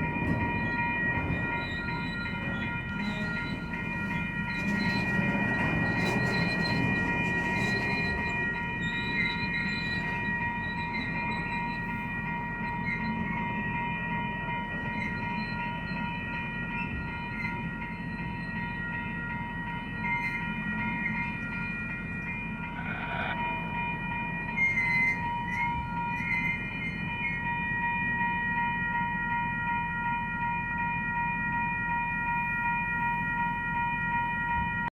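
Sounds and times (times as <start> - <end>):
freight train cars rumbling: 0.0 - 34.9
wheels squealing: 0.6 - 11.9.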